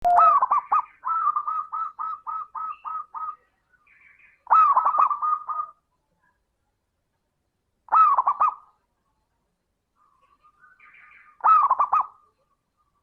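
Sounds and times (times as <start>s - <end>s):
dove cooing: 0.0s - 3.4s, 4.5s - 5.8s, 7.9s - 8.7s, 11.4s - 12.2s.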